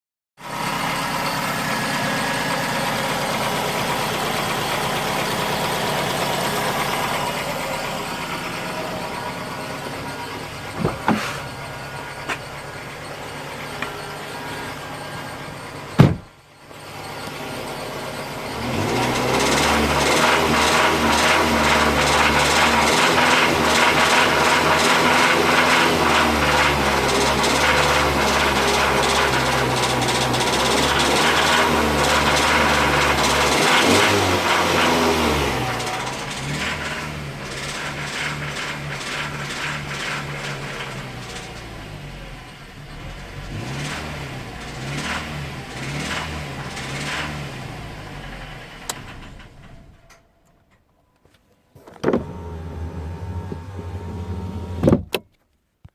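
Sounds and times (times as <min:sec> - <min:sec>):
car engine with knocking: 0:00.4 - 0:50.8, 0:51.8 - 0:55.3
sharp bang: 0:16.0 - 0:16.3.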